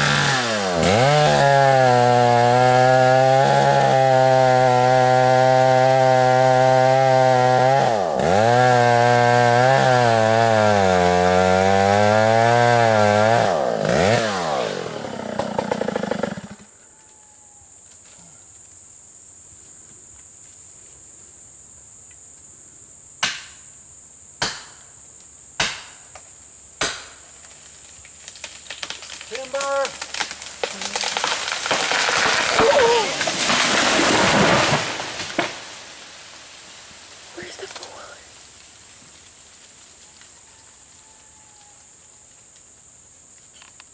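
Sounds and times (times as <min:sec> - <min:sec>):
chainsaw cutting wood: 0:00.0 - 0:16.7, 0:26.8 - 0:38.0
sharp cracks: 0:25.6 - 0:26.2, 0:26.8 - 0:39.9.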